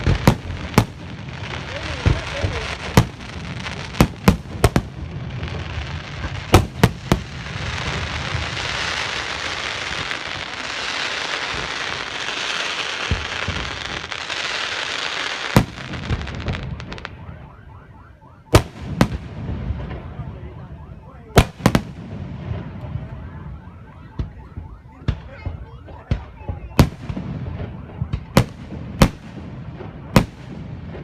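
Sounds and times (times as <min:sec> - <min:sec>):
firework crackling and hissing: 0:00.0 - 0:17.1
firework bangs: 0:00.0 - 0:31.0.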